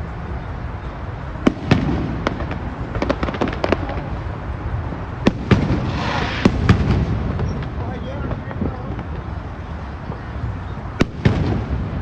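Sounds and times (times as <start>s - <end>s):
firework crackling pops: 1.4s - 4.5s, 5.2s - 9.4s, 11.0s - 12.0s
firework bangs: 1.4s - 10.3s, 10.9s - 12.0s.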